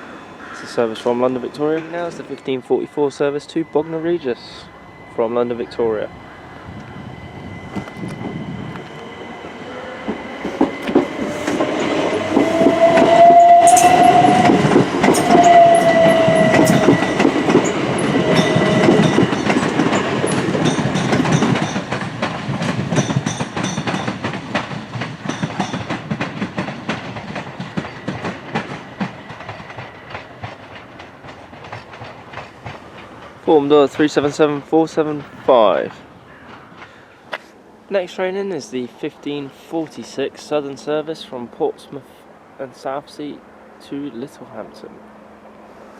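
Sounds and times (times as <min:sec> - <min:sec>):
train motor whine: 0:03.9 - 0:21.3
wheels clicking over rail joints: 0:10.0 - 0:37.5.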